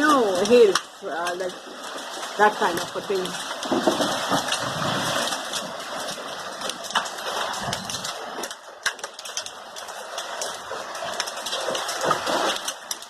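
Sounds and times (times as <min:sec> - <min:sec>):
hailstones striking: 0:00.0 - 0:13.0
rain hiss: 0:00.0 - 0:13.0.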